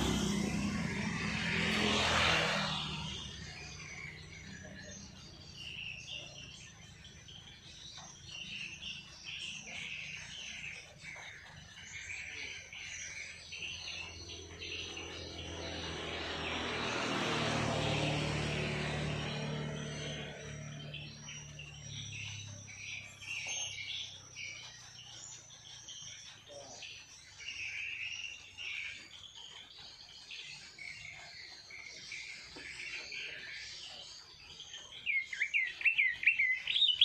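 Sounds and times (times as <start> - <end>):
vehicle passing: 0.0 - 25.8
songbirds chirping: 0.0 - 37.0.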